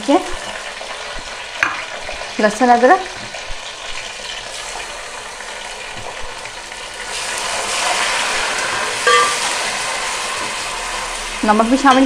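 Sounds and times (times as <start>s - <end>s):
hot oil sizzling in a pot: 0.0s - 12.0s
brief ringing knock: 9.1s - 9.4s.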